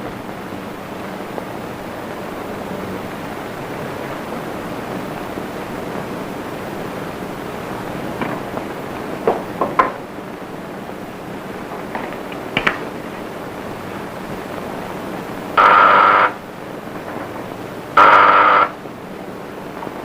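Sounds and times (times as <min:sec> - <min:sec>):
film soundtrack hiss: 0:00.0 - 0:20.0
electric ringer buzzing: 0:15.5 - 0:16.5, 0:17.9 - 0:18.9.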